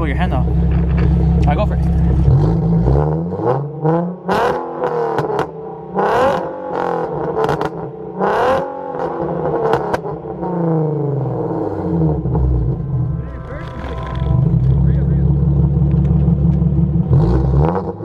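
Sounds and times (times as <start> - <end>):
exhaust pops and crackles: 0.0 - 2.6, 13.2 - 17.2
car engine revving hard: 0.4 - 18.0.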